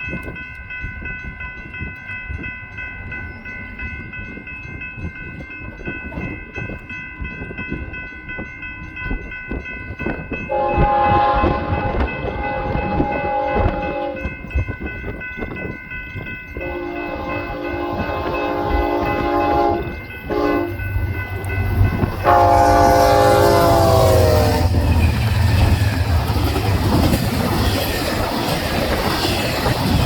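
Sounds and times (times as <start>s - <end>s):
high ringing tone: 0.4s - 26.6s
freight train wheel clatter: 4.3s - 30.0s
locomotive air horn: 10.5s - 14.2s, 16.6s - 20.8s, 22.1s - 25.0s.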